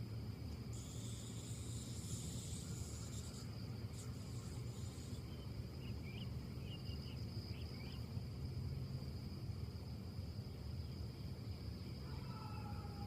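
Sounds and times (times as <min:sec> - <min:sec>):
high insect drone: 0:00.0 - 0:13.0
wind in trees: 0:00.0 - 0:13.0
bird chirps: 0:05.2 - 0:08.0.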